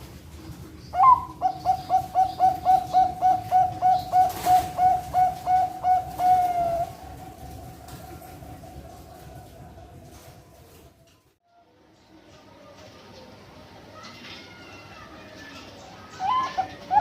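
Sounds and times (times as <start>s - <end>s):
dove cooing: 0.9s - 10.9s, 16.2s - 17.0s.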